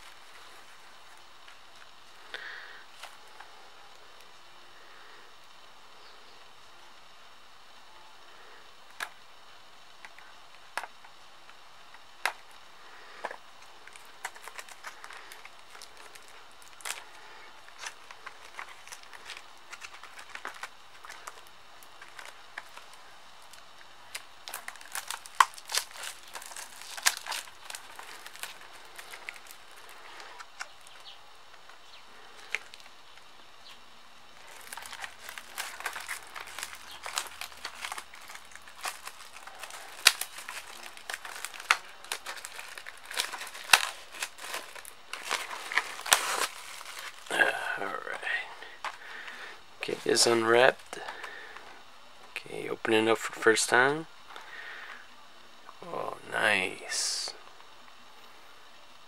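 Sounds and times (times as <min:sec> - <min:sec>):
plastic shrink-wrap crinkling: 0:00.0 - 0:04.3, 0:09.9 - 0:51.7.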